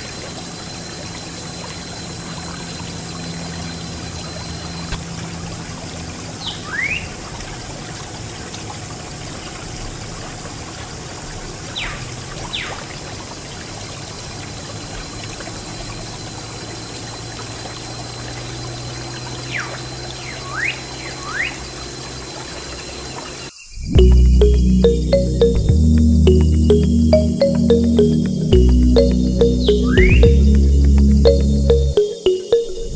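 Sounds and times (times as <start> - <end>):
water pouring and trickling: 0.0 - 23.5
rising and falling chirps: 23.6 - 32.9
music: 24.0 - 32.9.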